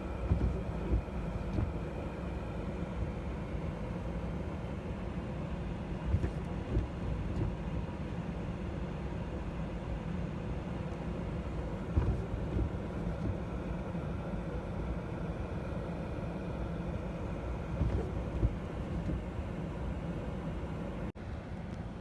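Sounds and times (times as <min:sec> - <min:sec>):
dull low thumps: 0:00.0 - 0:02.2, 0:06.0 - 0:07.6, 0:17.6 - 0:19.4.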